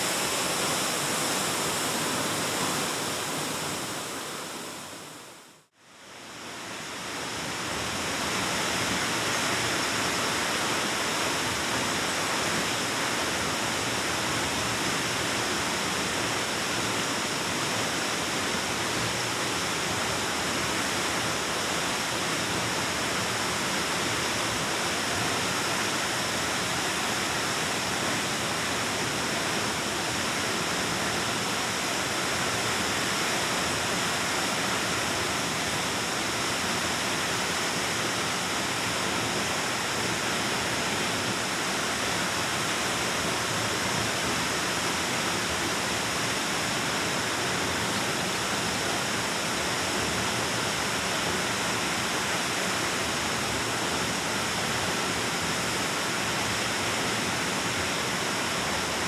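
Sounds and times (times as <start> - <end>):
waterfall rushing: 0.0 - 5.5.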